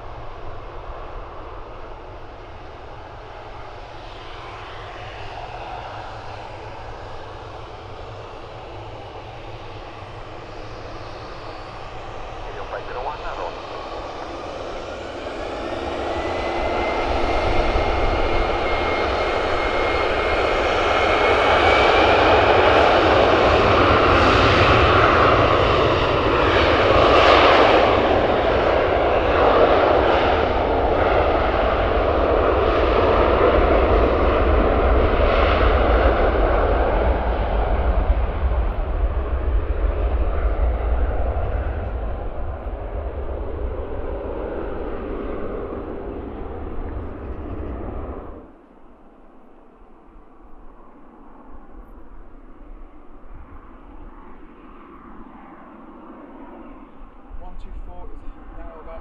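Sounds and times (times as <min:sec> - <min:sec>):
jet engines whine and rumble: 0:00.0 - 0:59.0.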